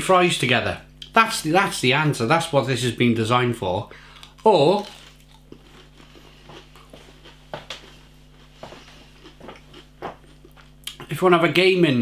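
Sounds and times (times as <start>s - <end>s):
chewing crunches: 4.0s - 11.1s.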